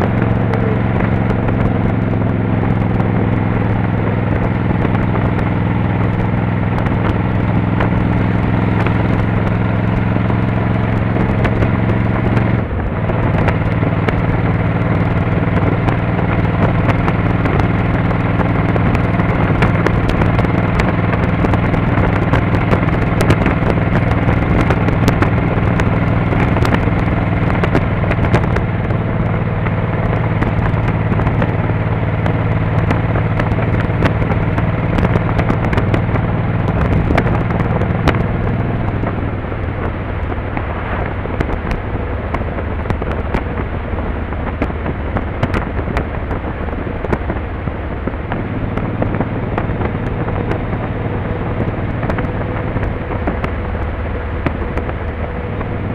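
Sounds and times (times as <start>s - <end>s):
motorcycle engine running: 0.0s - 55.9s
road and wind noise: 0.0s - 55.9s
sharp crackles: 0.0s - 55.9s.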